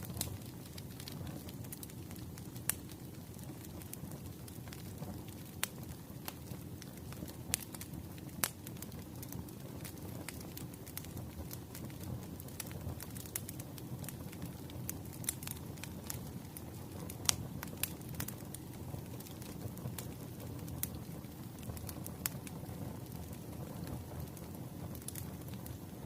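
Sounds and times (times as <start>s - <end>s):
burning logs crackling and popping: 0.0s - 26.0s
low rumble of flames: 0.0s - 26.0s.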